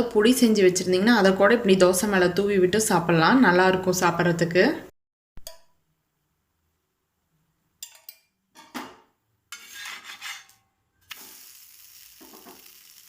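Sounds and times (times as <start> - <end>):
metal utensil scraping griddle: 9.5 - 10.6
batter sizzling on griddle: 11.1 - 13.0.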